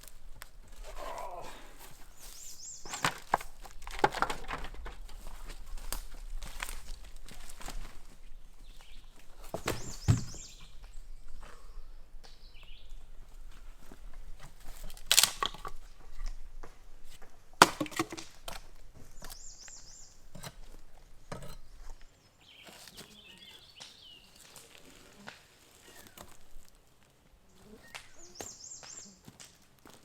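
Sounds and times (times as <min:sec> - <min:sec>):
wood cracking and knocking: 0:02.8 - 0:08.2, 0:08.9 - 0:10.8, 0:14.4 - 0:19.4
high chirping calls: 0:27.8 - 0:29.2.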